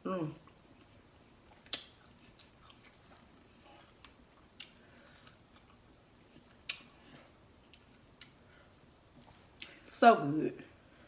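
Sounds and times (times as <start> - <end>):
chewing clicks and smacks: 1.5 - 7.0.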